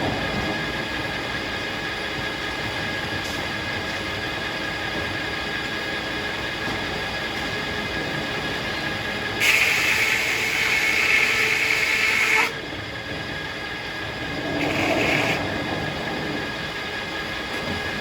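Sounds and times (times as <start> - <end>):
circular saw whine: 7.7 - 18.0
saw blade cutting log: 9.4 - 12.5.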